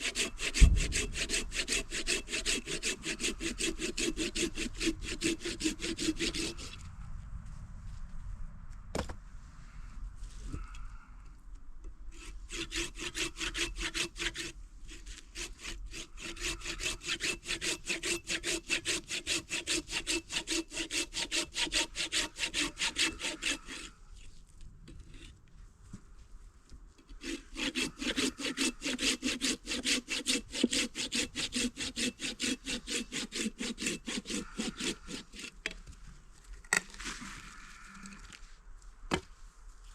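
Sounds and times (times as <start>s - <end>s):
hand saw cutting wood: 0.0s - 6.8s, 12.1s - 24.3s, 27.0s - 35.8s.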